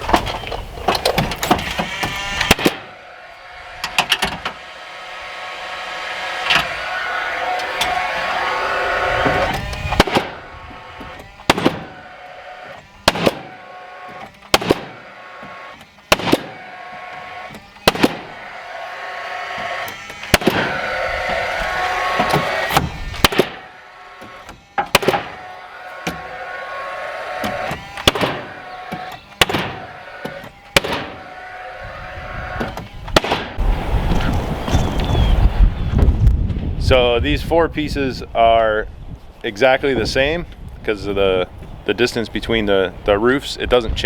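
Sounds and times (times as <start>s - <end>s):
steady sound with held tones: 0.0s - 36.0s
nail gun shots: 0.9s - 2.9s, 9.5s - 10.4s, 11.0s - 12.0s, 12.6s - 18.5s, 19.6s - 20.9s, 22.1s - 26.4s, 27.4s - 31.3s, 32.6s - 33.6s.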